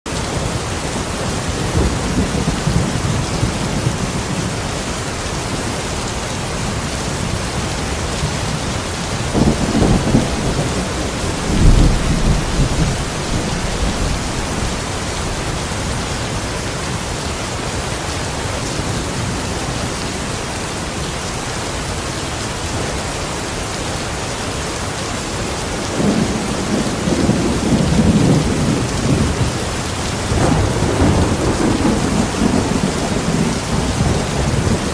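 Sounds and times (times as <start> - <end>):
heavy rain: 0.1 - 34.9
thunder rumbling: 1.3 - 4.6, 8.2 - 16.6, 25.8 - 34.9.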